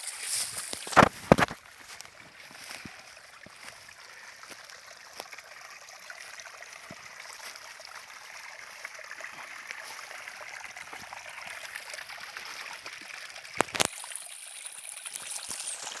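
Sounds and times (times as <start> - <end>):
stream water running: 0.0 - 16.0
thin high steady tone: 13.8 - 16.0.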